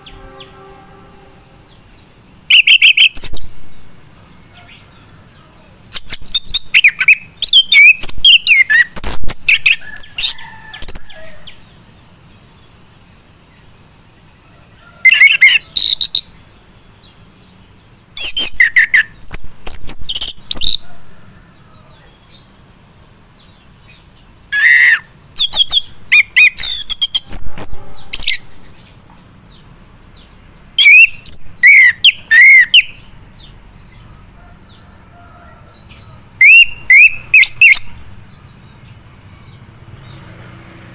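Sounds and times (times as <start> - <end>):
thrush singing whistled notes: 0.0 - 4.0, 5.9 - 11.7, 18.2 - 21.0, 24.5 - 28.8, 30.8 - 33.6, 36.3 - 40.2.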